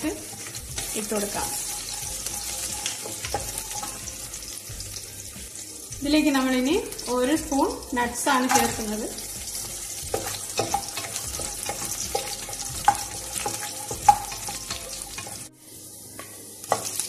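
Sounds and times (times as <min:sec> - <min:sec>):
nuts and spices sizzling in oil: 0:00.0 - 0:17.0
spatula scraping a pot: 0:09.5 - 0:15.5.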